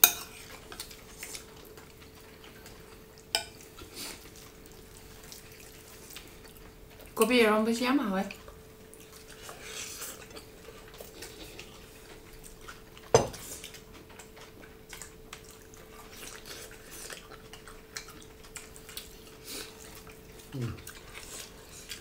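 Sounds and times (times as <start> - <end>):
faint steady hum: 0.0 - 22.0
quiet eating noises: 0.0 - 22.0.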